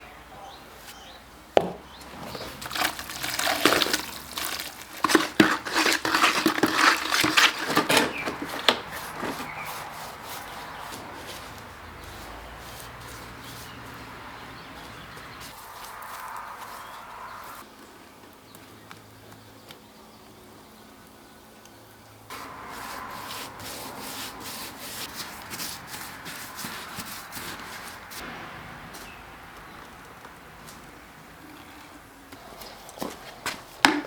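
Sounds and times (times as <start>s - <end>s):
hand tool scraping furnace lining: 1.6s - 14.2s.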